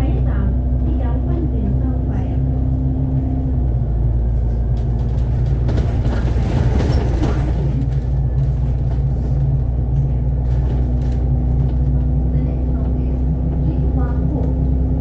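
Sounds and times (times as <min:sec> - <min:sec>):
bus engine drone: 0:00.0 - 0:15.0
road noise with light rattles: 0:00.0 - 0:15.0.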